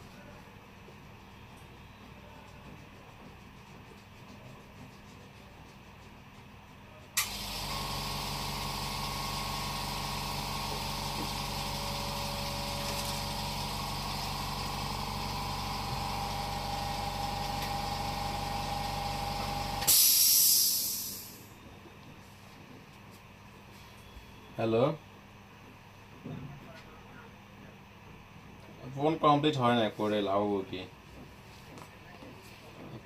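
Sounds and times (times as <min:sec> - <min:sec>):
motor humming: 0:07.2 - 0:20.0
burst of hissing air: 0:19.8 - 0:21.5.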